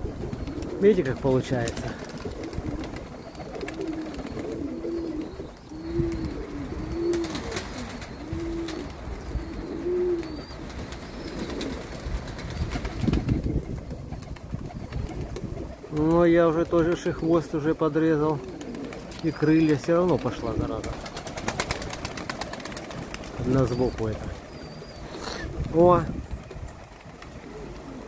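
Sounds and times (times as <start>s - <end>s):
wind rumbling on microphone: 0.0s - 0.9s, 1.5s - 3.6s, 4.2s - 11.2s, 11.8s - 17.0s, 23.1s - 28.0s
pigeons cooing: 0.0s - 28.0s.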